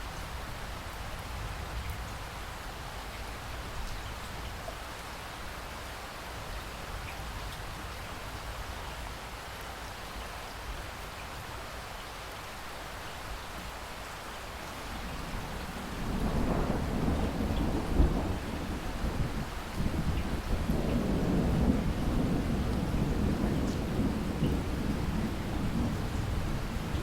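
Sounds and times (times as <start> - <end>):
heavy rain: 0.0 - 27.0
thunder rumbling and cracking: 14.9 - 27.0.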